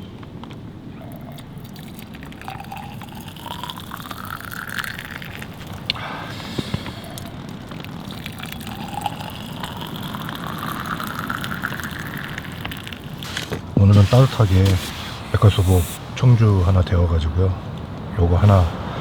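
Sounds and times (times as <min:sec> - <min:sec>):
wine poured into a cup: 0:00.9 - 0:17.2.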